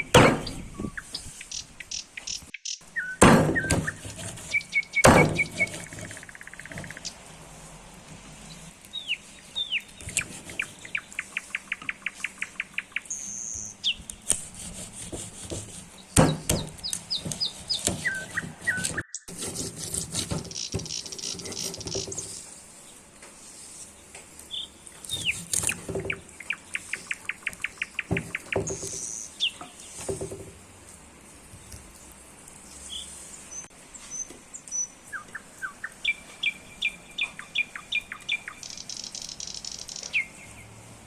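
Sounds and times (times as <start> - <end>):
songbirds singing: 0.0 - 7.2, 8.4 - 14.4, 15.4 - 23.1, 23.9 - 30.4, 32.6 - 40.8
sharp knocks and clicks: 3.2 - 7.1, 15.0 - 22.4, 25.2 - 26.3, 27.4 - 30.6.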